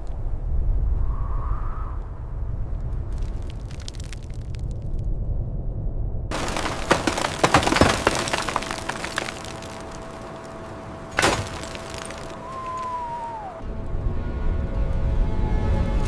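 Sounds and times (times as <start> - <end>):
sharp cracks and snaps: 3.2 - 4.7.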